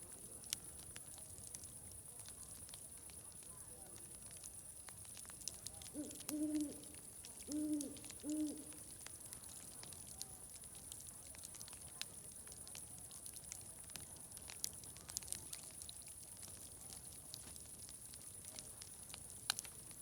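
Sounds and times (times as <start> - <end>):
wood fire crackling and popping: 0.0 - 20.0
owl hooting: 5.9 - 6.9, 7.5 - 8.7.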